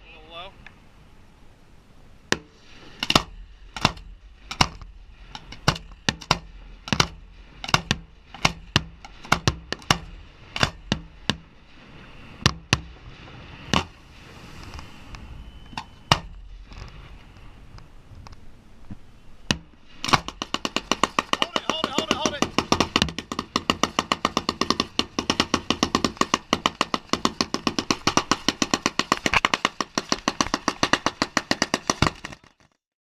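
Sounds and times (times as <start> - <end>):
fireworks bangs: 3.1 - 17.6, 19.5 - 32.3
fireworks crackle: 19.9 - 32.8.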